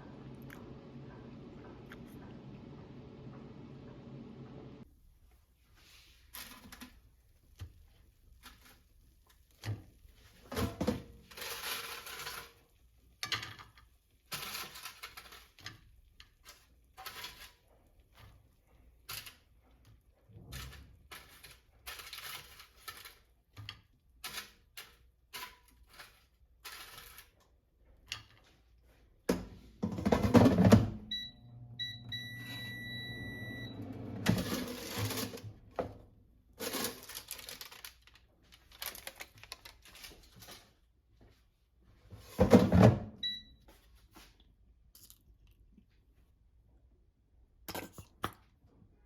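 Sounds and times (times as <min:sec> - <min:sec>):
rustling or scraping: 0:11.2 - 0:12.8, 0:24.2 - 0:27.6, 0:33.8 - 0:35.8, 0:36.5 - 0:42.6
household knocks and clatter: 0:29.3 - 0:30.9, 0:42.2 - 0:43.1
appliance electronic beeps: 0:31.0 - 0:34.6.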